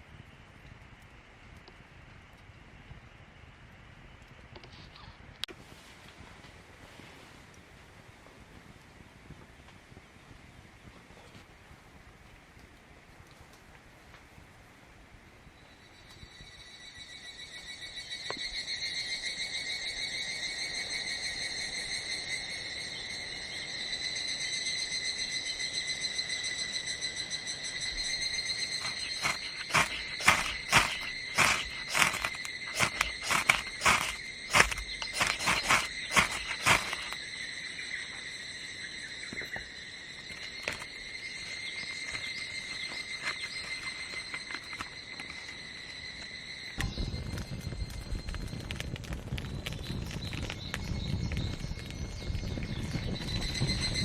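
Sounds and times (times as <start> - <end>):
cicada calling in loud pulses: 16.4 - 47.1, 52.0 - 54.0
high-pitched insect drone: 23.8 - 46.9.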